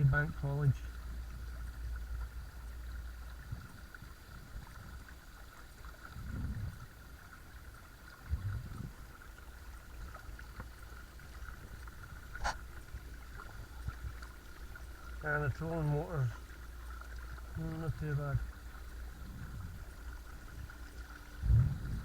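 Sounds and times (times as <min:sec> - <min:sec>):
water moving along hull: 0:00.0 - 0:22.0
soft low thuds: 0:21.4 - 0:22.0.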